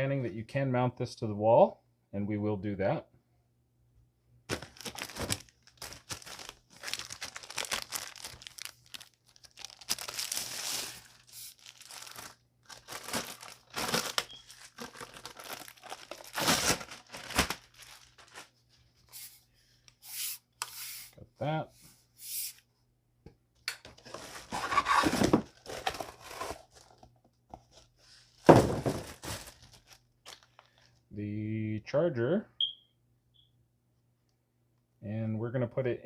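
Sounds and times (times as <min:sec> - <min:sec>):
packaging crinkling and tearing: 0:04.5 - 0:18.6, 0:24.1 - 0:27.0, 0:28.8 - 0:31.0.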